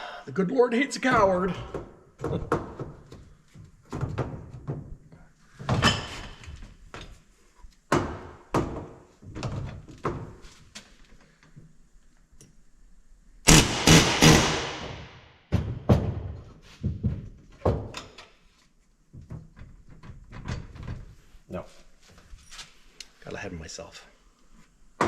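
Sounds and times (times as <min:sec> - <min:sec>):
hard hits on metal: 0:13.5 - 0:15.2.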